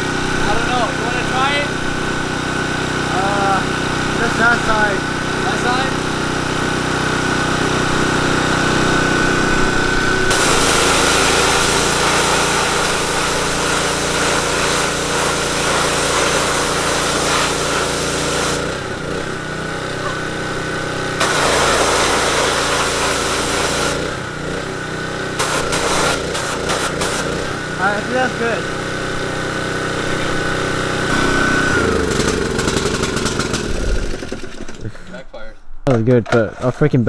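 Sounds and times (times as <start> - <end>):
small engine running: 0.0 - 35.1
loud hissing rush: 7.8 - 19.4, 20.0 - 24.4, 25.3 - 28.8.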